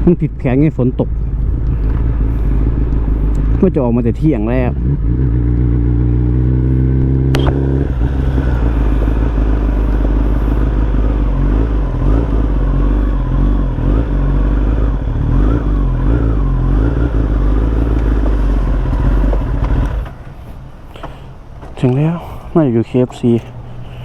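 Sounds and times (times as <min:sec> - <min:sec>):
motorcycle engine running: 0:00.0 - 0:21.7
low wind rumble: 0:00.0 - 0:24.0
sharp click: 0:07.3 - 0:07.6.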